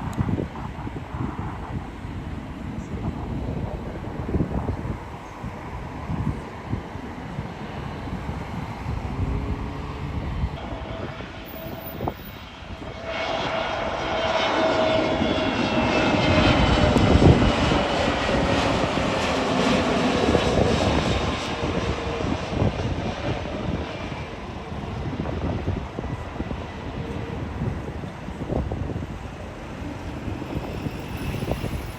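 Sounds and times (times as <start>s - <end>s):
jet engines passing: 0.0s - 31.9s
wind on microphone: 0.0s - 31.9s.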